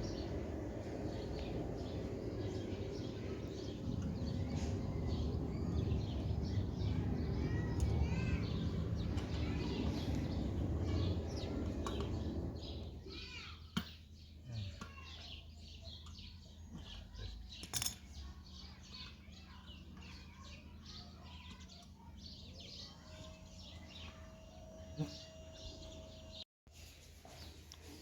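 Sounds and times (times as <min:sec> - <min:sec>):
low rumble: 0:00.0 - 0:13.1
small birds chirping: 0:00.0 - 0:26.4.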